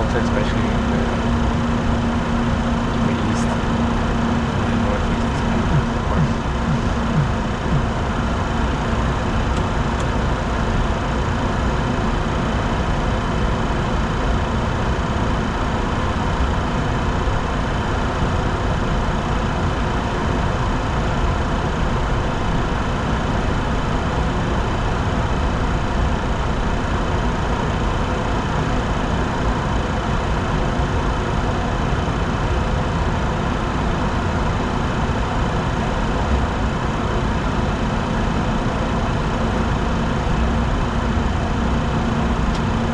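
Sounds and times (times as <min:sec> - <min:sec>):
faint steady high tones: 0:00.0 - 0:08.2
airflow and jet engine hum: 0:00.0 - 0:12.5.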